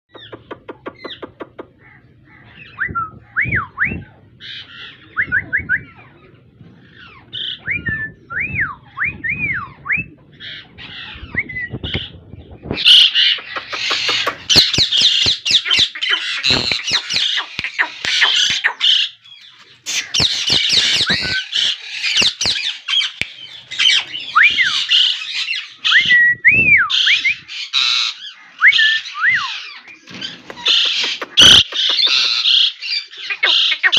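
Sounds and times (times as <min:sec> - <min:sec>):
parakeet whistles and squawks: 0:10.4 - 0:26.2, 0:26.9 - 0:33.9.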